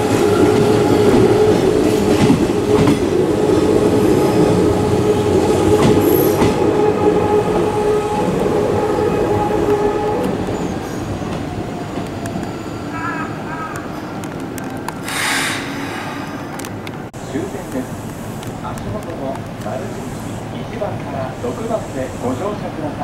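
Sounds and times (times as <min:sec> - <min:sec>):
train wheels clattering: 0:00.0 - 0:08.5
steady train hum: 0:00.0 - 0:23.0.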